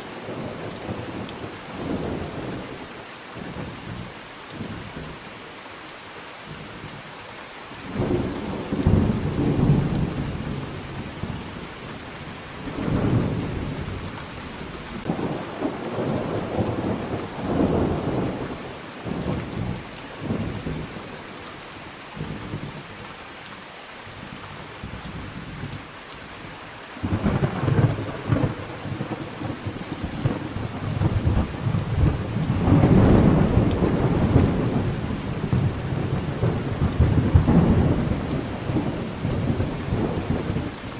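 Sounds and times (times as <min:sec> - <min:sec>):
steady rain: 0:00.0 - 0:40.9
rolling thunder: 0:12.6 - 0:20.9, 0:27.0 - 0:40.8.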